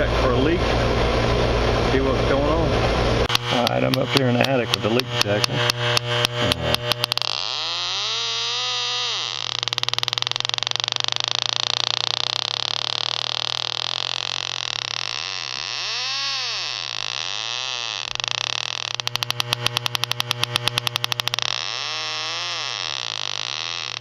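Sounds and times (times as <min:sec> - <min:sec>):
low hum: 0:00.0 - 0:24.0
leak detector tone and beeps: 0:05.2 - 0:15.7.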